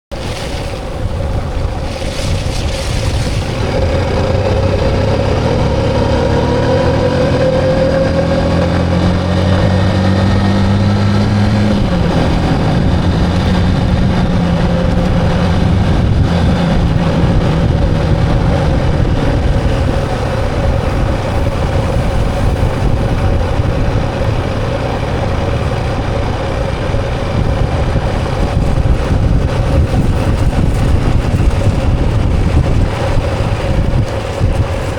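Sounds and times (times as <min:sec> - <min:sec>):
wind and road noise: 0:00.1 - 0:34.9
motorcycle engine running: 0:00.2 - 0:34.9.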